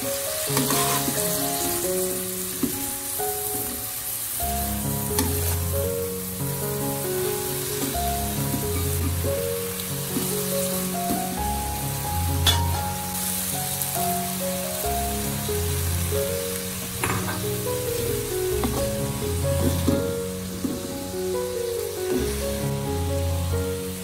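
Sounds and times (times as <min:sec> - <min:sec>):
food sizzling in a wok: 0:00.0 - 0:24.0
spatula stirring in wok: 0:00.4 - 0:02.9
spatula tapping pan: 0:00.5 - 0:01.8, 0:07.8 - 0:09.3, 0:18.5 - 0:21.0
background music with bass: 0:08.0 - 0:13.4, 0:14.0 - 0:21.2.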